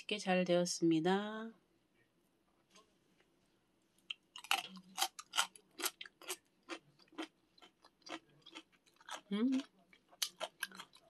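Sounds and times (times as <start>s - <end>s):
crisp chewing crunches: 4.1s - 11.0s.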